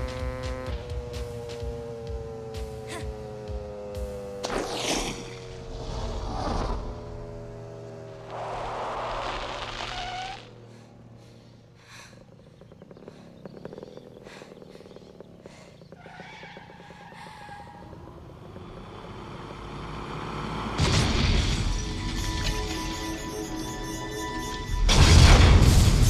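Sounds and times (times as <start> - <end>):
vehicle engine noise: 0.0 - 26.0
action movie score: 20.7 - 26.0.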